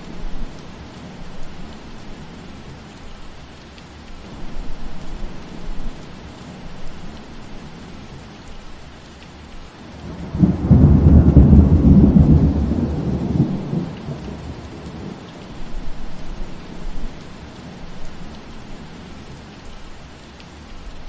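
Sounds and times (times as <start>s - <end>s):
steady rain falling: 0.0s - 21.0s
thunder rumbling: 9.9s - 17.3s.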